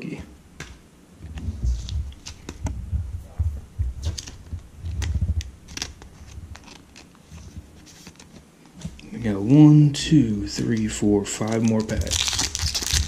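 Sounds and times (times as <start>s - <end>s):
trading cards being handled: 0.6s - 9.1s, 10.4s - 13.0s
foil packs crinkling: 4.0s - 8.4s, 10.4s - 13.0s.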